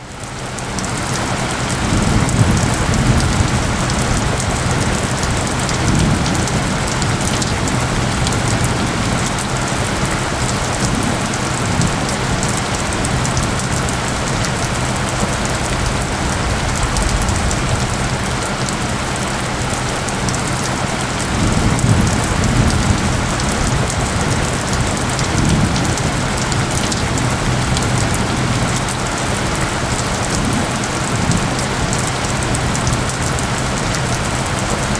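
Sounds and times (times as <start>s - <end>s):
steady rain pattering: 0.0s - 34.9s
low steady tones: 1.5s - 34.9s
low rumbles: 1.7s - 34.9s.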